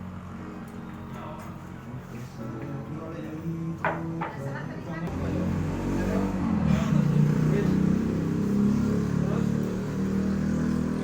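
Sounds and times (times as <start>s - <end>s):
vehicle engine running: 5.1s - 11.0s.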